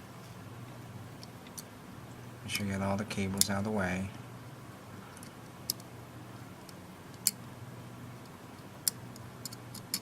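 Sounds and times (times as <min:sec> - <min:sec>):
low steady hum: 0:00.0 - 0:10.0
sharp small clicks: 0:08.2 - 0:10.0.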